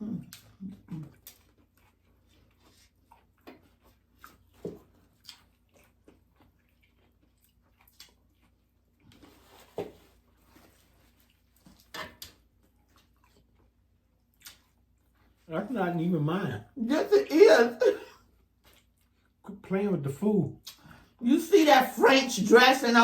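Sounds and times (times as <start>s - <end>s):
chewing crispy food: 0.0s - 15.5s, 18.1s - 19.6s.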